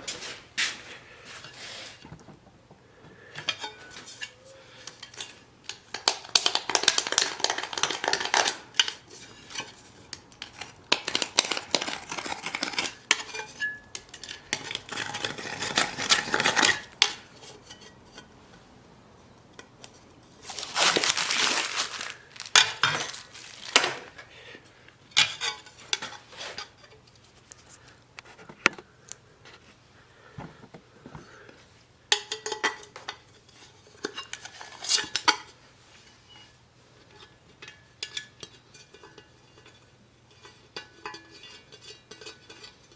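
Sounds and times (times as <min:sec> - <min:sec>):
metal tools clinking and scraping: 0:03.4 - 0:06.1, 0:20.4 - 0:24.3.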